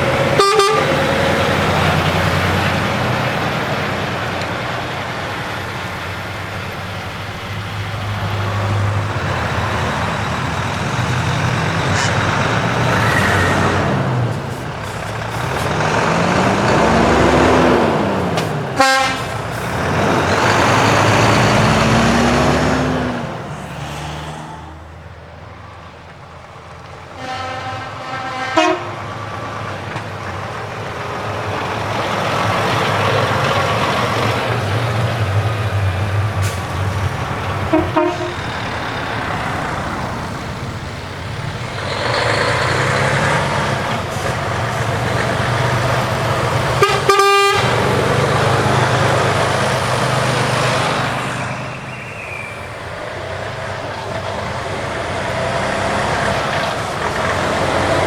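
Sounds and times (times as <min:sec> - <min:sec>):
truck air horn blasts: 0:00.0 - 0:02.2, 0:11.6 - 0:21.6, 0:27.2 - 0:29.3, 0:37.5 - 0:38.7, 0:45.6 - 0:48.8
heavy trucks driving past: 0:00.0 - 0:58.0.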